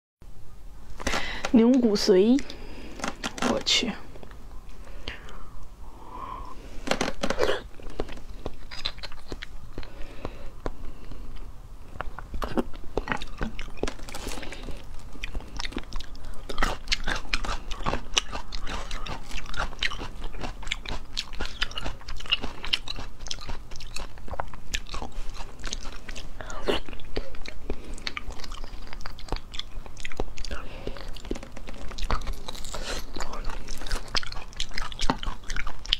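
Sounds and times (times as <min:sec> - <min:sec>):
chewing and mouth smacks: 0:07.4 - 0:35.9.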